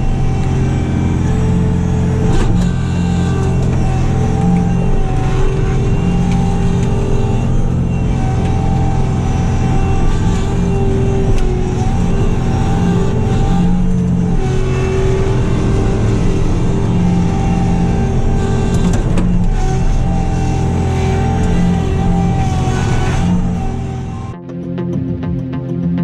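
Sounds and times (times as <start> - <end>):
loader diesel engine running: 0.0 - 24.4.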